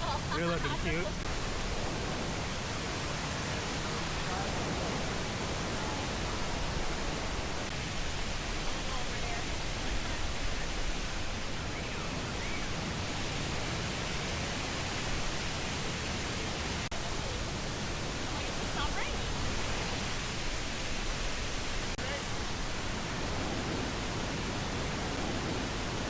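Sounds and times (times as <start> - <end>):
waterfall roaring: 0.0 - 26.0
faint voices: 3.5 - 13.5.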